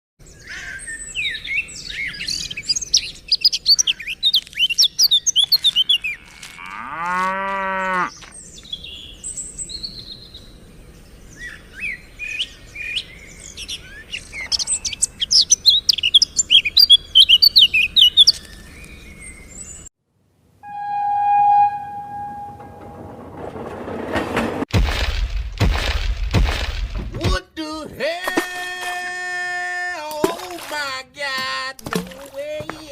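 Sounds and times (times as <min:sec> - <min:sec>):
small birds chirping: 0:00.2 - 0:06.6, 0:07.6 - 0:19.9
cow mooing: 0:05.9 - 0:08.2
steady horn tone: 0:20.6 - 0:23.4.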